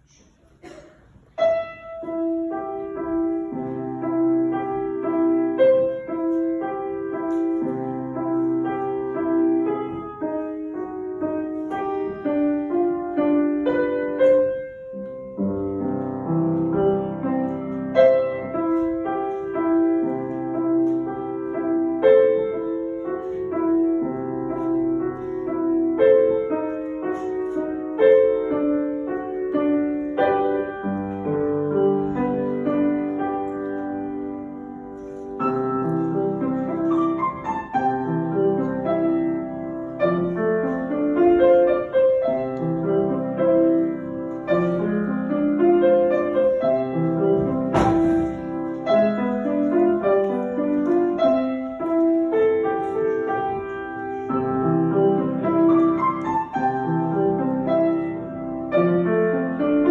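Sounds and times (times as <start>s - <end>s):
gentle solo piano piece: 0.0s - 59.9s.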